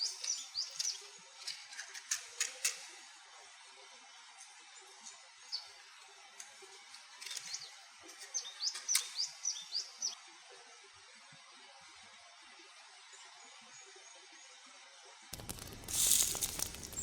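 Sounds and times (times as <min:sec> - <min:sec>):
small bird chirping: 0:00.0 - 0:01.1, 0:07.4 - 0:10.2.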